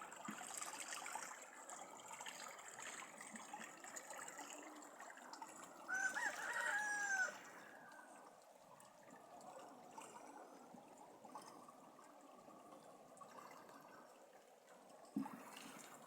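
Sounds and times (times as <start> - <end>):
rooster crowing: 5.9 - 7.7.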